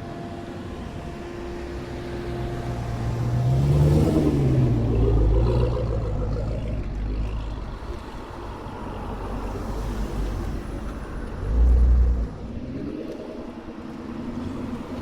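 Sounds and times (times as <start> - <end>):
passing car engine rumble: 0.7 - 15.0.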